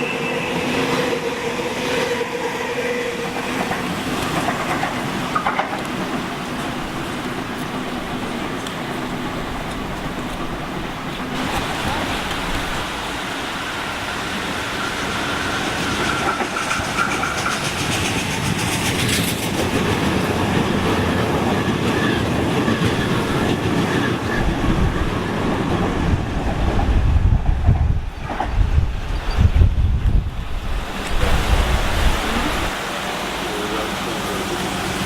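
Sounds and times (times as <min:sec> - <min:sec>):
train rumble: 0:00.0 - 0:35.0
train wheels clicking over rail joints: 0:03.2 - 0:11.4, 0:14.9 - 0:28.6.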